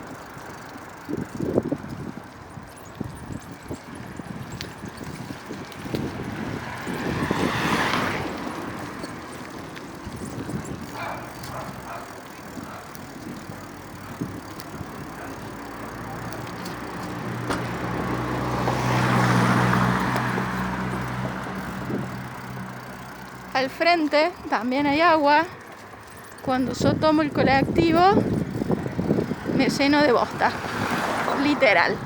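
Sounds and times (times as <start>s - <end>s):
vehicles passing on street: 0.0s - 32.0s
low engine hum: 5.4s - 24.6s.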